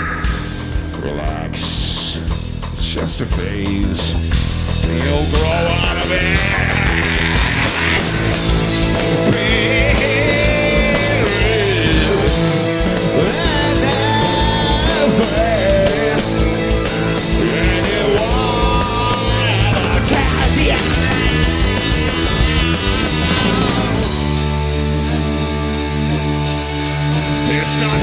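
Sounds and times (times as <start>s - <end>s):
live heavy rock band: 0.0s - 28.0s.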